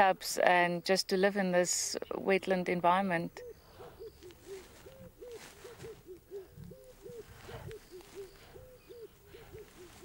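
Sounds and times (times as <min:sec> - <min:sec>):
bird hooting rapidly: 0:03.4 - 0:10.0.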